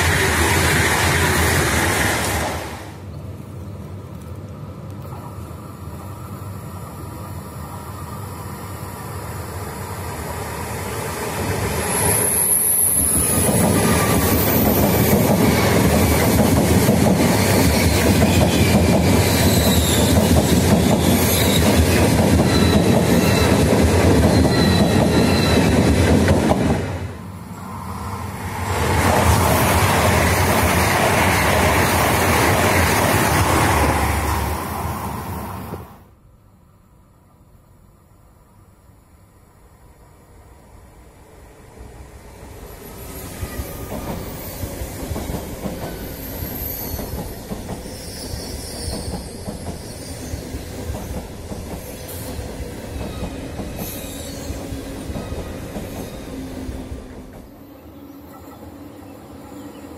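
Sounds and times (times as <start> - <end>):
train wheels rushing on rail: 0.0 - 3.1, 5.2 - 36.1, 40.6 - 59.9
faint whistling squeals: 11.8 - 14.8, 19.3 - 20.2, 24.3 - 25.8, 42.8 - 45.1, 45.8 - 51.2, 51.8 - 56.6.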